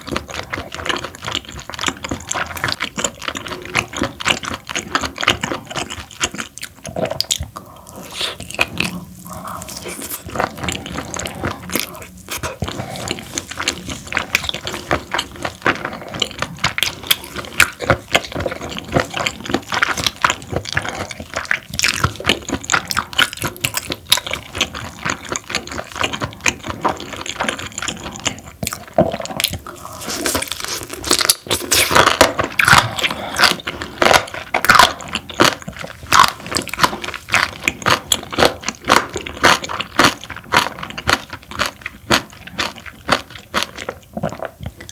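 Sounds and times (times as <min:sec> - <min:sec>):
wet chewing clicks and smacks: 0:00.0 - 0:44.9.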